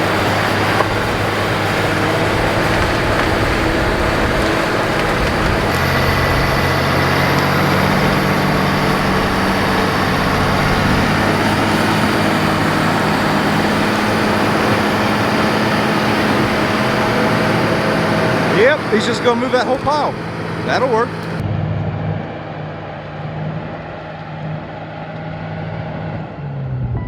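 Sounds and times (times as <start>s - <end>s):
bulldozer diesel engine under load: 0.0s - 21.4s
bulldozer pushing dirt and trees: 0.0s - 27.0s.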